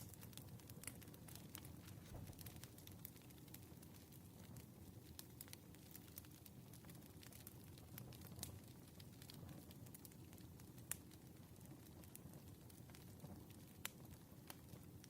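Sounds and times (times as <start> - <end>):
sharp fire pops: 0.0 - 3.9
wood fire crackling: 0.0 - 15.0.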